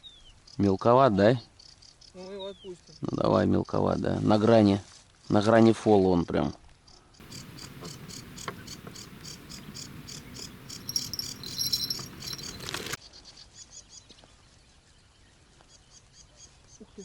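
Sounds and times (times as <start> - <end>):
field crickets chirping: 7.2 - 13.0.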